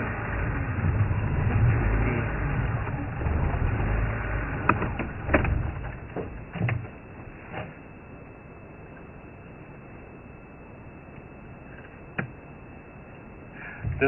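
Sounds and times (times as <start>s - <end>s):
vehicle engine rumbling: 0.0s - 8.2s, 13.6s - 14.0s.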